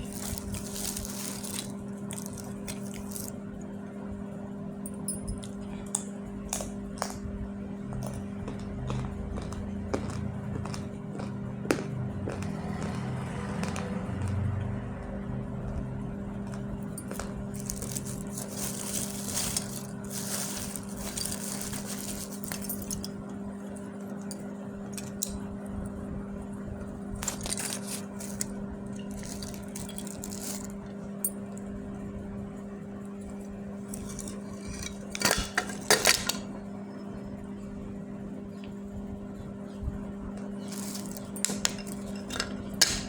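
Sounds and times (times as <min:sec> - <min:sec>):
dry clay crunching and crumbling: 0:00.0 - 0:03.3, 0:16.5 - 0:23.0
steady low hum: 0:00.0 - 0:43.0.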